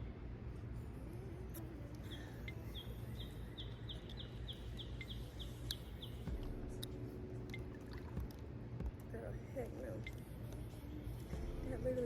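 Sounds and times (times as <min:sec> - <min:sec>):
low outdoor background rumble: 0:00.0 - 0:12.0
small bird chirping: 0:02.0 - 0:06.9.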